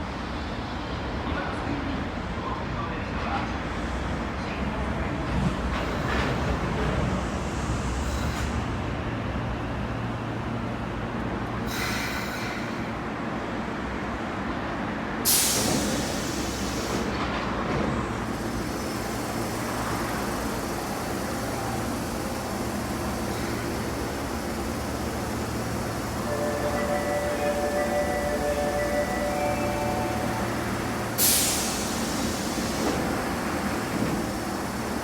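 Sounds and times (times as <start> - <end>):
train low rumble: 0.0 - 35.0
air hiss: 15.3 - 17.1, 18.2 - 35.0.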